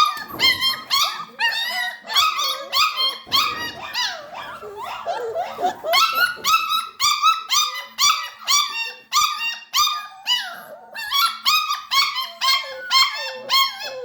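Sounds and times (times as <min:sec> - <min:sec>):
puppies yelping and whimpering: 0:00.0 - 0:14.0.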